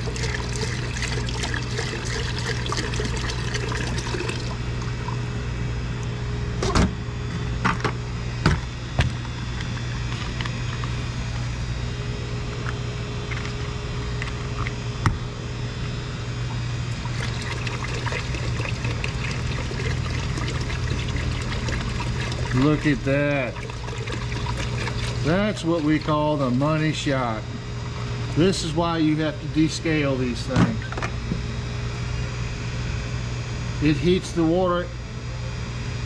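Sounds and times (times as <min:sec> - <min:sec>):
water pouring: 0:00.0 - 0:05.2, 0:16.9 - 0:26.6
small pump humming: 0:00.0 - 0:36.0.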